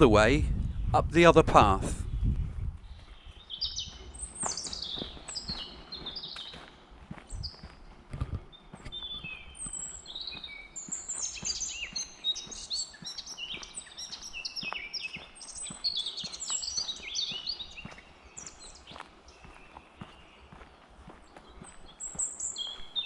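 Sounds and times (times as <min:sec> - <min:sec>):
faint footsteps on a path: 0:02.8 - 0:23.0
songbirds singing and chirping: 0:03.4 - 0:06.6, 0:08.5 - 0:23.0.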